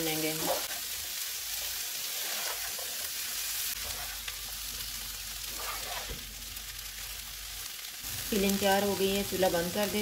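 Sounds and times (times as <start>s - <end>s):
food sizzling in oil: 0.0s - 10.0s
spatula scraping pan: 1.5s - 4.4s, 5.4s - 6.2s.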